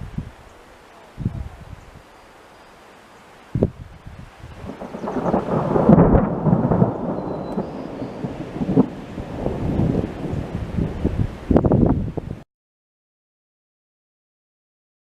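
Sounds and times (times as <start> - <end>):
thunder rolling: 4.5 - 12.4.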